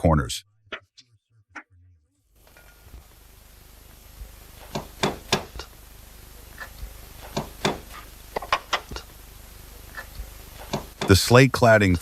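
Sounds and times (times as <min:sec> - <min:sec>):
hammer tapping on slate: 0:04.7 - 0:05.6, 0:07.3 - 0:09.0, 0:10.6 - 0:11.2.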